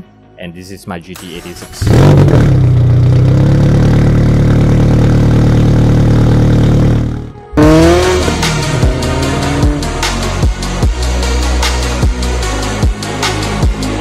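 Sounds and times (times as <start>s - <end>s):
car engine revving: 1.8s - 10.6s
electronic music: 6.2s - 14.0s.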